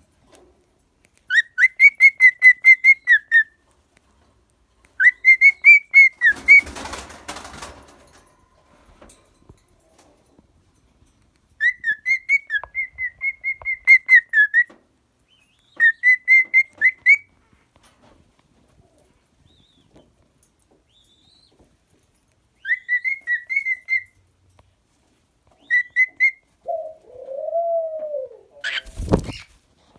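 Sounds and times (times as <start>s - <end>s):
cockatiel whistled chirps: 5.0s - 6.6s, 22.6s - 24.1s, 25.6s - 26.4s.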